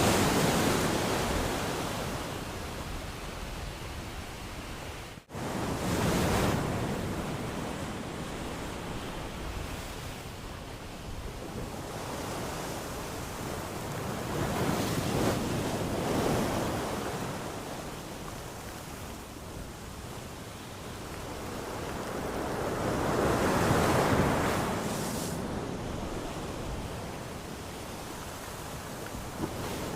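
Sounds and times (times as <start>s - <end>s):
sea waves washing on shore: 0.0s - 29.9s.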